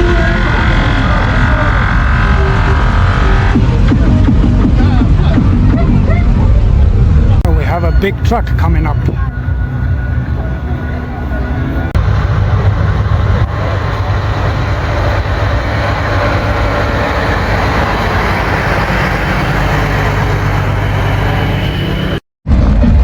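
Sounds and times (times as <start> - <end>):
truck engine driving past: 0.0 - 5.8, 6.7 - 22.2.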